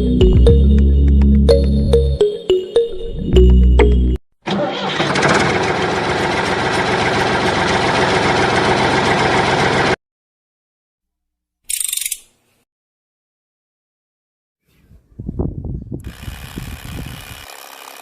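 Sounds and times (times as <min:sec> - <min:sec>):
electric motor gritty whir: 0:16.0 - 0:18.0.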